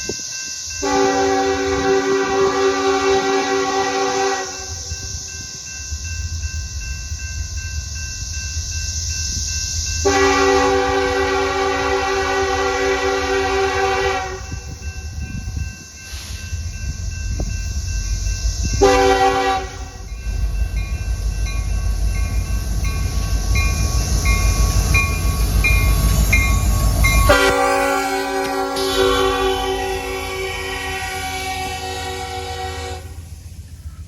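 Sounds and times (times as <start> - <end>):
passing train rumble: 0.0 - 34.0
train horn chord: 0.8 - 4.7, 10.0 - 14.7, 18.8 - 20.0, 27.3 - 33.2.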